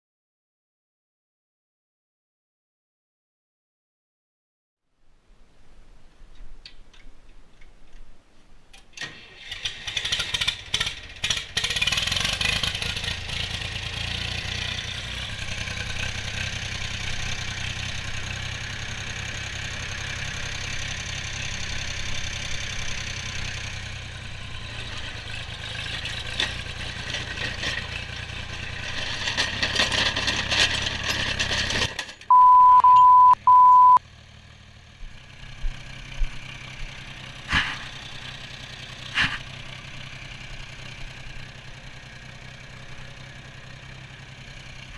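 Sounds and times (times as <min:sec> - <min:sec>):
tractor engine cranking: 0:08.7 - 0:33.3
steady bleep tone: 0:32.3 - 0:34.0.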